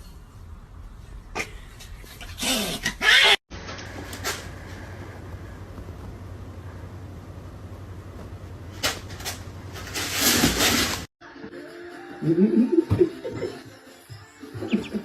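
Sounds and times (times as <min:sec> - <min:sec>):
steady hum: 0:03.6 - 0:10.0
person chuckling: 0:12.2 - 0:13.7, 0:14.6 - 0:15.0.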